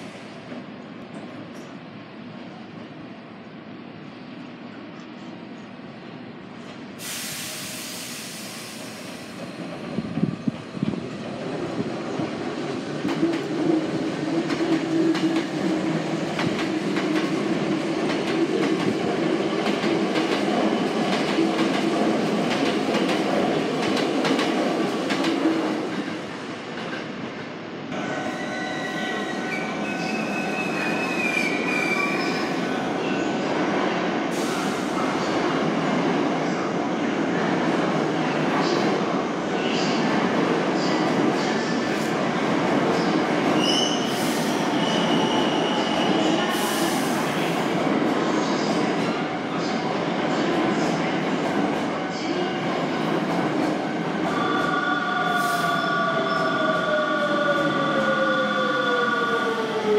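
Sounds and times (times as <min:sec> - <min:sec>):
train whining and squealing: 0:27.9 - 0:35.5, 0:42.9 - 0:47.7, 0:54.1 - 0:59.9.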